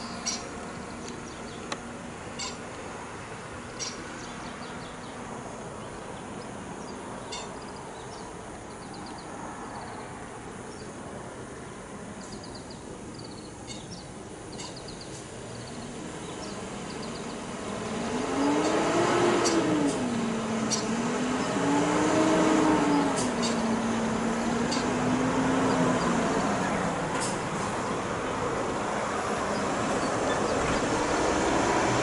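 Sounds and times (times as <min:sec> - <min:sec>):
bird chirps: 0:00.0 - 0:01.7, 0:02.4 - 0:02.6, 0:03.8 - 0:05.2, 0:06.8 - 0:10.0, 0:12.2 - 0:17.4
outdoor background noise: 0:00.0 - 0:32.0
vehicle passing: 0:15.4 - 0:32.0.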